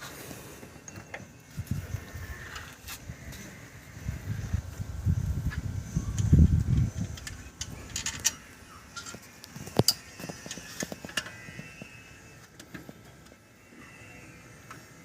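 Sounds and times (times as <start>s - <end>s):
tools and metal parts clicking: 6.1s - 11.4s.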